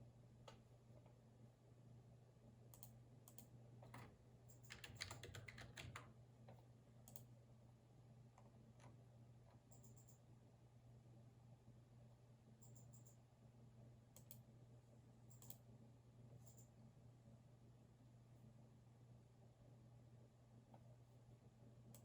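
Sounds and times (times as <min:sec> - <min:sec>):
typing on computer keyboard: 0:02.8 - 0:06.2.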